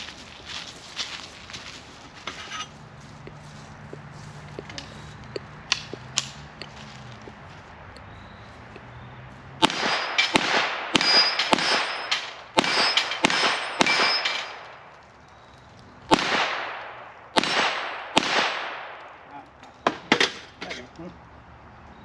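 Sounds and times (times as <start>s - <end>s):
pistol shots: 9.6s - 14.8s, 16.1s - 19.2s
steel plates ringing: 9.9s - 10.4s, 11.0s - 14.7s.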